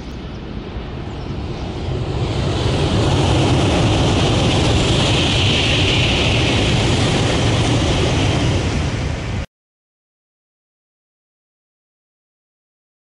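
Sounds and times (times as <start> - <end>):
high-speed train rushing past: 0.0 - 9.5.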